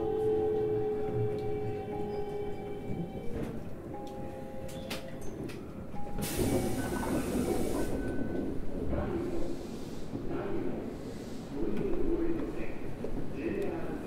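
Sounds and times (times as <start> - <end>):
compressed-air hiss: 6.2 - 8.0.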